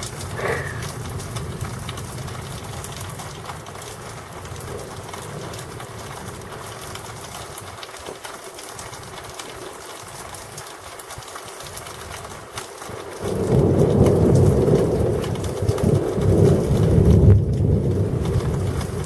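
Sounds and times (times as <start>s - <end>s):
thunder rumbling: 0.0s - 8.0s, 12.9s - 19.0s
steady rain: 0.0s - 19.0s.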